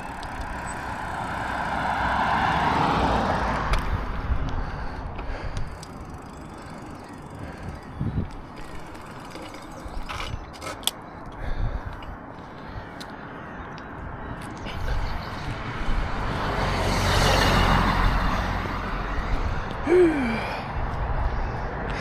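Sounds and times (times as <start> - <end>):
vehicle passing by: 0.0 - 10.0, 14.6 - 19.8.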